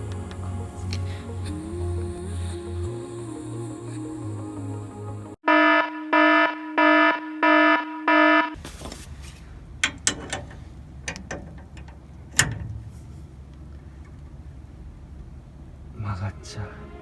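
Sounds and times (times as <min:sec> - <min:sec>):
electronic alarm beeps: 0:05.4 - 0:08.6.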